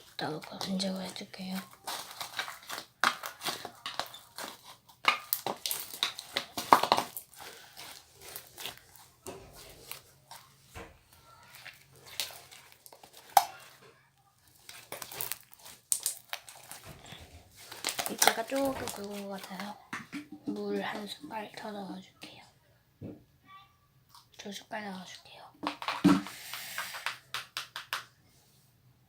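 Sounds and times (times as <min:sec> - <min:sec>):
slime squishing and crackling: 0:00.0 - 0:19.9.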